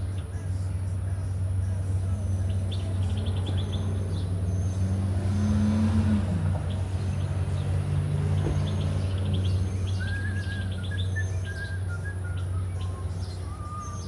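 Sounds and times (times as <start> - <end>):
birds chirping: 0.0 - 14.0
vehicle engine passing by: 1.6 - 14.0.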